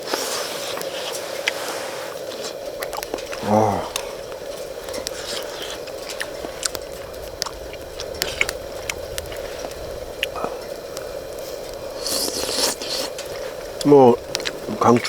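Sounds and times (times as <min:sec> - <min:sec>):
person chewing: 0:00.1 - 0:15.0
steady hum: 0:00.6 - 0:15.0
utensil clicking against pot: 0:02.2 - 0:15.0
person humming: 0:03.3 - 0:04.4.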